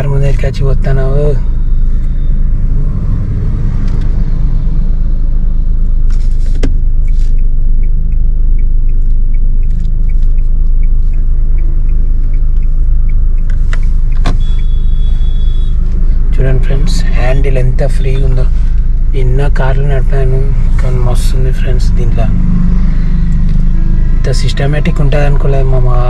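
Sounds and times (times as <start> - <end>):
car rumbling from inside cabin: 0.0 - 26.0.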